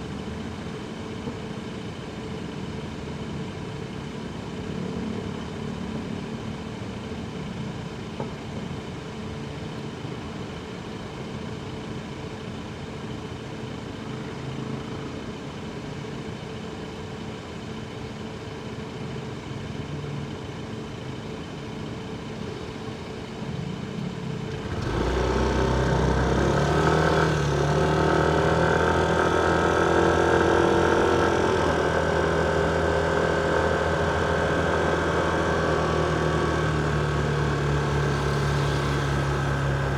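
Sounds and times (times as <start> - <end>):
engine idling: 15.6 - 39.9
loud engine running: 24.1 - 39.9.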